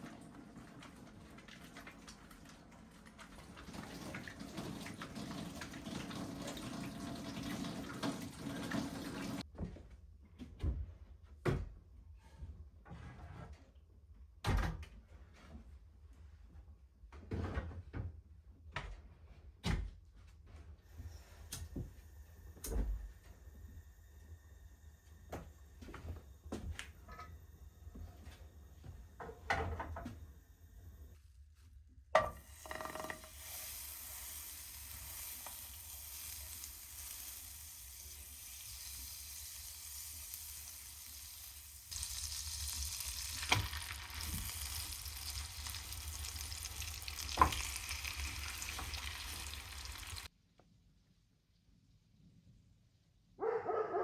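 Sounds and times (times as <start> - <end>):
steady sizzling hiss: 32.3 - 50.3.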